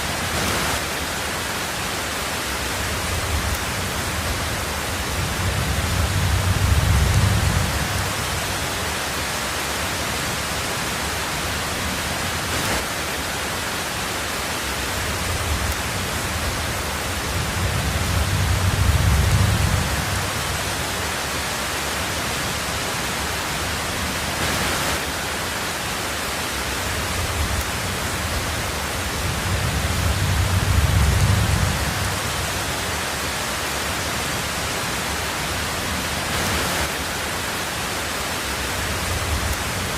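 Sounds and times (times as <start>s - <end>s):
heavy rain on a tin roof: 0.0s - 39.9s
low rumble of thunder: 2.7s - 8.8s, 15.1s - 21.0s, 26.9s - 32.9s.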